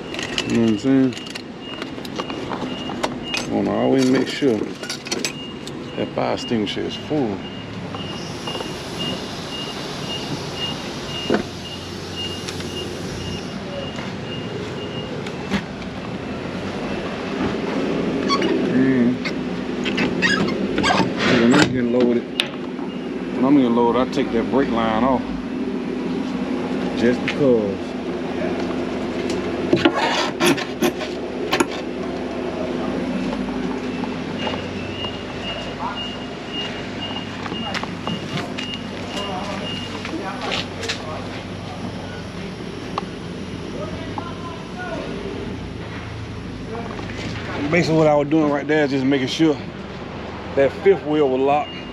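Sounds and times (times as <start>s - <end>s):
truck engine running: 0.0s - 51.9s
metal clanks and scrapes: 3.2s - 5.4s, 19.8s - 21.7s, 29.7s - 31.9s
high-pitched electronic beep: 5.3s - 15.6s, 33.8s - 40.2s, 51.5s - 51.9s.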